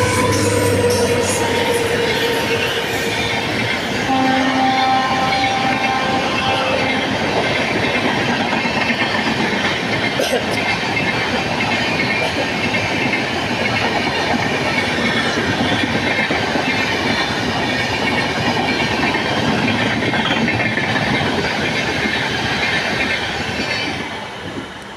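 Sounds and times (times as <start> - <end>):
train passing at full speed: 0.0 - 24.9
wheels rushing on rails: 0.0 - 24.9.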